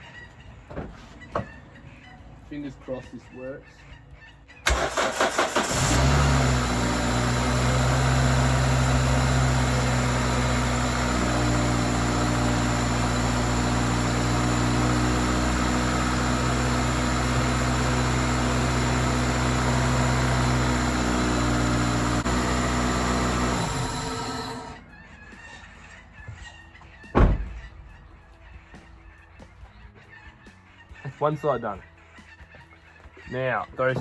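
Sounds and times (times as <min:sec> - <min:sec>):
car engine idling: 0:04.6 - 0:26.0.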